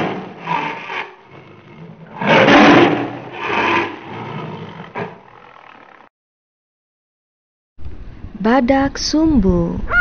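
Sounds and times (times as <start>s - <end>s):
tiger roaring: 0.0s - 6.1s.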